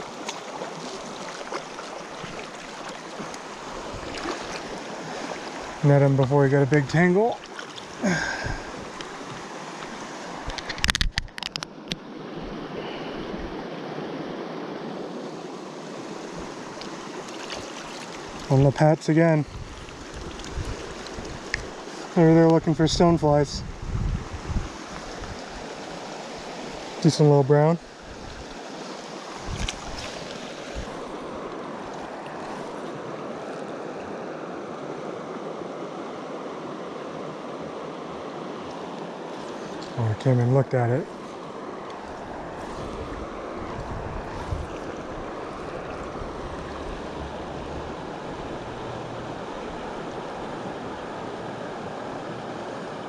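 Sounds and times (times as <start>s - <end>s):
river water rushing: 0.0s - 23.4s, 24.2s - 53.0s
knocks or splashes: 4.0s - 4.7s.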